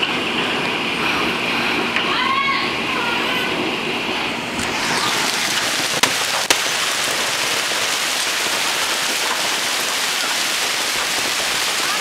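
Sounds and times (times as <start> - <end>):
hail and heavy rain: 4.6 - 12.0
sharp cracks: 4.6 - 12.0.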